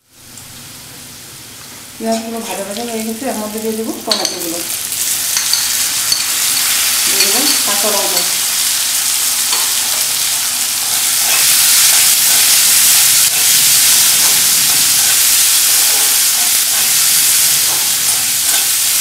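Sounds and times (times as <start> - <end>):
vegetables sizzling in hot oil: 0.0 - 19.0.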